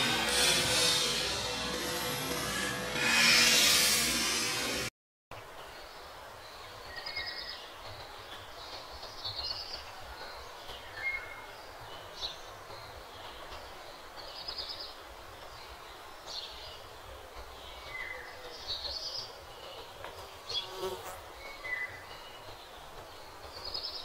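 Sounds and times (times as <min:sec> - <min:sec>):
small birds chirping: 0:05.5 - 0:24.0.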